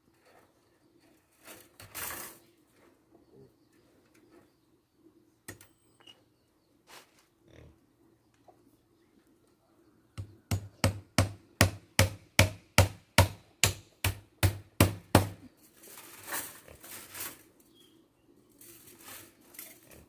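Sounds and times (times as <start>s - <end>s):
rustling and handling: 6.8s - 7.4s, 15.5s - 20.0s.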